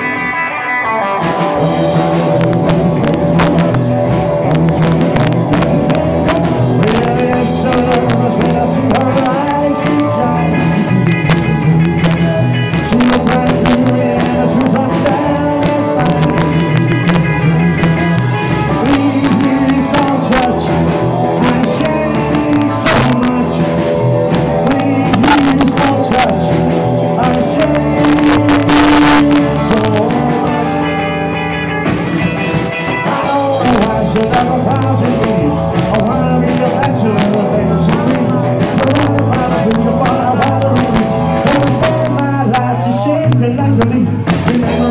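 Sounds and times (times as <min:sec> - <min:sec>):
bass guitar: 0:00.0 - 0:44.9
electric guitar: 0:00.0 - 0:44.9
person singing: 0:00.0 - 0:44.9
drums with steady beat: 0:01.1 - 0:44.9.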